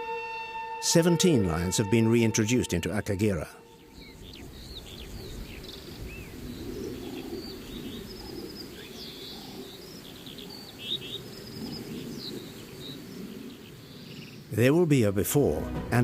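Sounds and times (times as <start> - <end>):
small birds chirping: 3.6 - 14.8.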